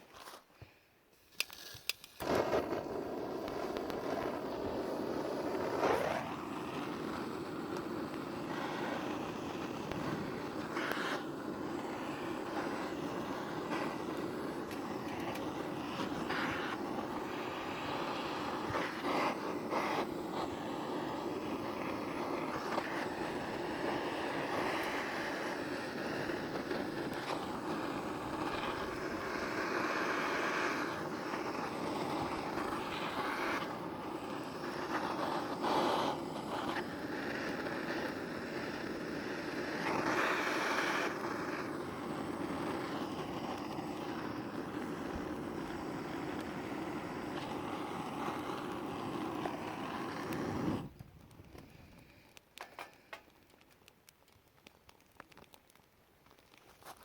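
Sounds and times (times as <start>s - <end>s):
fire roaring: 2.2s - 57.0s
firewood snapping: 50.8s - 57.0s.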